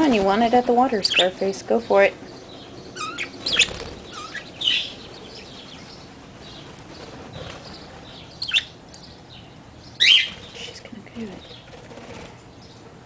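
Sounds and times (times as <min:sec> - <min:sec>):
budgerigars chirping: 0:00.0 - 0:11.8.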